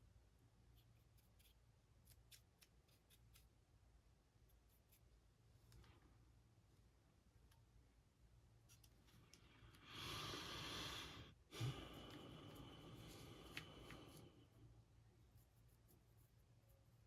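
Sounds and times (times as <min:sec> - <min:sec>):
person breathing close to microphone: 0:09.4 - 0:14.7.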